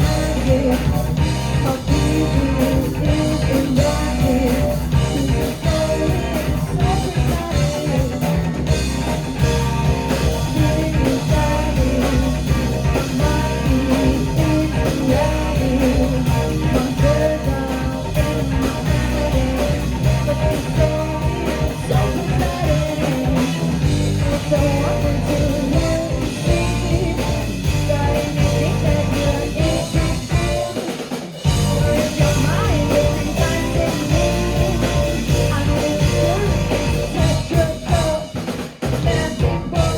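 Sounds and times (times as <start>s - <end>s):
drum kit: 0.0s - 39.9s
guitar: 0.0s - 39.9s
person singing: 0.0s - 39.9s.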